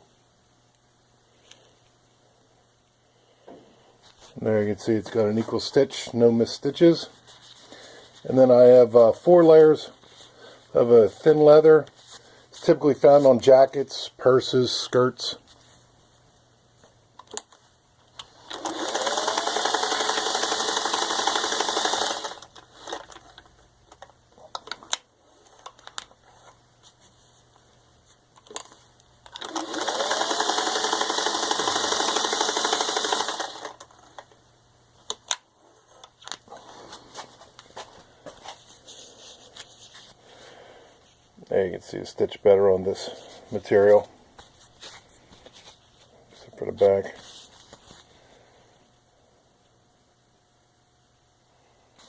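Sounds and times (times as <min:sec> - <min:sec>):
sewing machine stitching leather: 0:18.4 - 0:23.2, 0:29.3 - 0:33.9.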